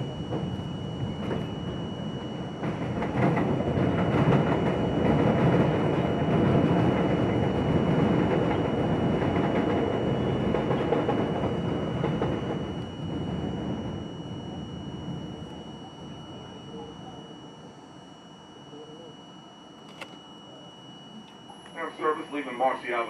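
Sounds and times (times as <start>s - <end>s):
subway train rumbling: 0.0s - 18.0s.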